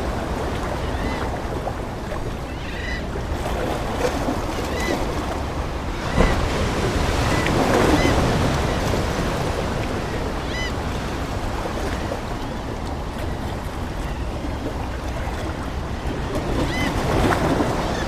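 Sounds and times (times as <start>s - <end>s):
ocean waves washing in: 0.0s - 18.0s
seagull calls: 2.5s - 3.1s, 10.3s - 10.8s.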